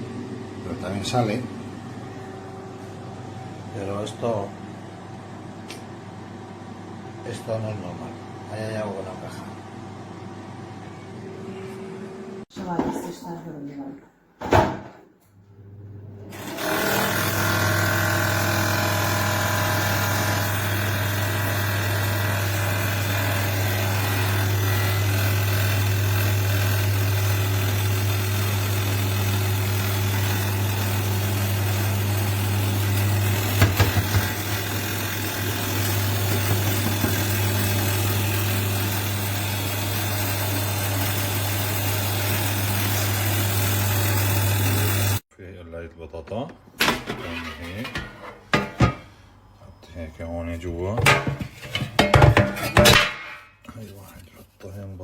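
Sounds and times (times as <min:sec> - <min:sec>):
air fryer fan hum: 0:00.0 - 0:12.9, 0:14.4 - 0:45.2.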